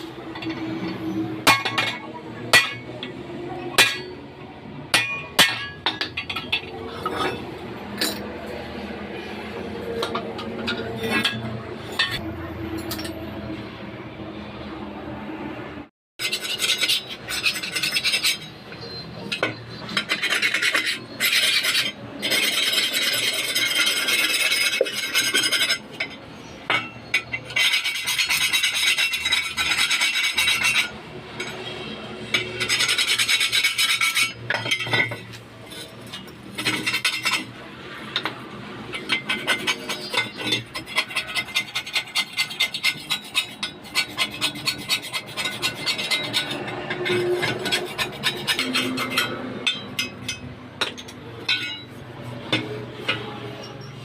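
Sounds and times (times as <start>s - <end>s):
rasping scraping strokes: 16.2s - 18.9s, 19.8s - 26.1s, 27.4s - 37.5s, 38.9s - 50.5s.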